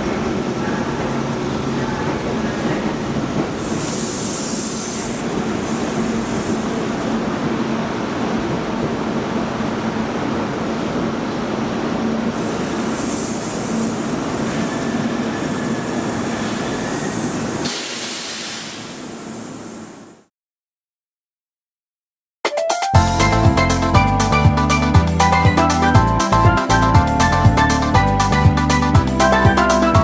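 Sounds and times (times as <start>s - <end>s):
train rumbling on rails: 0.0s - 20.3s
brief hissing: 3.6s - 5.3s, 12.4s - 13.9s, 17.0s - 20.2s.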